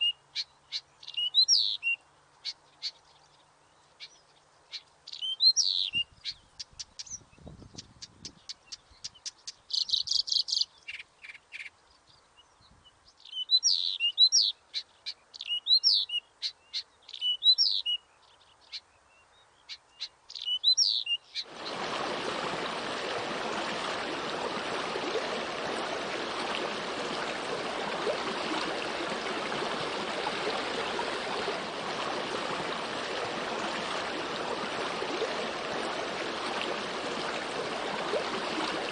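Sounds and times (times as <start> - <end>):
small birds chirping: 0.0 - 21.8
rushing water: 20.8 - 38.9.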